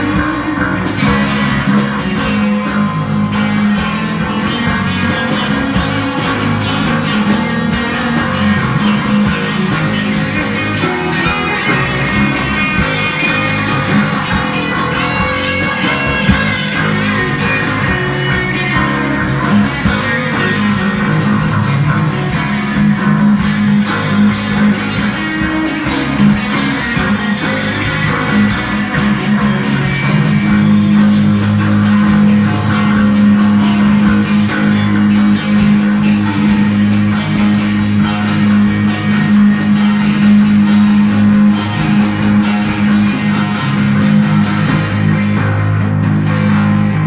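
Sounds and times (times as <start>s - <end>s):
bass guitar: 0.0s - 47.0s
drum kit: 0.0s - 47.0s
electric guitar: 0.0s - 47.0s.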